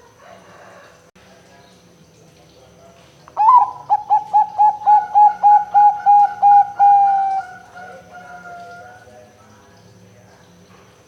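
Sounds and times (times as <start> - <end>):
dove cooing: 3.4 - 9.1.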